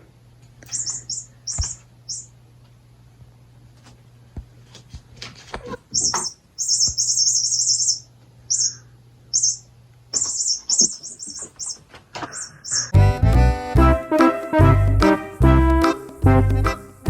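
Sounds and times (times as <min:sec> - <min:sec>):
electronic bird chirping: 0:00.6 - 0:02.3, 0:05.9 - 0:13.0.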